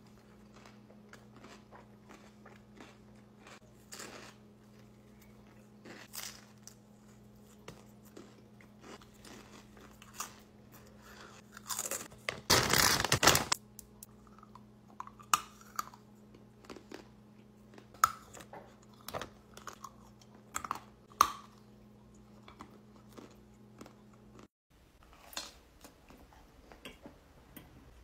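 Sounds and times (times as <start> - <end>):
chewing and mouth clicks: 0.1 - 10.4
plastic pouch rustling: 12.3 - 13.6.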